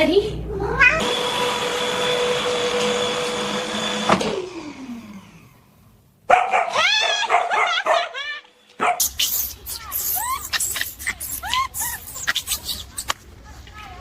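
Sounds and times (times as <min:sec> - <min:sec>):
appliance motor whining: 0:01.0 - 0:05.7
dog yipping and whining: 0:06.3 - 0:13.1.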